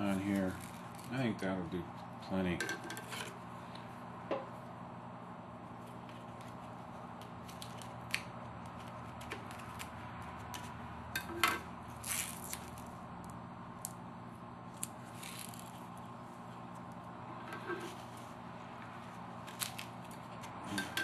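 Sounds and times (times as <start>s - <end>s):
steady low hum: 0.0s - 21.0s
tape tearing: 7.4s - 10.8s, 12.0s - 12.9s, 14.7s - 16.0s, 19.4s - 20.5s.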